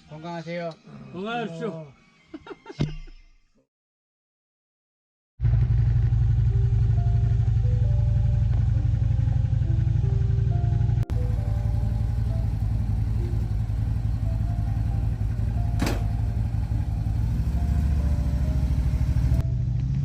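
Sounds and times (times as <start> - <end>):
motorcycle engine running: 5.4 - 20.0
background music: 6.5 - 19.9.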